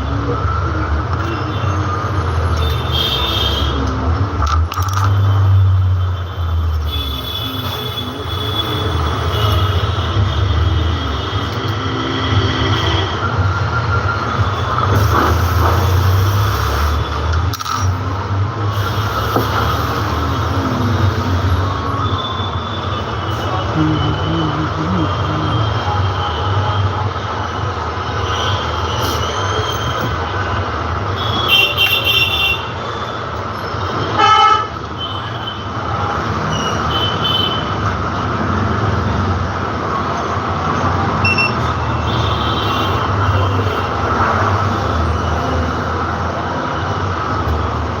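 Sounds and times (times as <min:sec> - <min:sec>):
street traffic: 0:00.0 - 0:48.0
vehicle horns: 0:01.2 - 0:04.0, 0:05.3 - 0:13.4, 0:31.1 - 0:33.0, 0:33.8 - 0:37.9, 0:41.2 - 0:44.8.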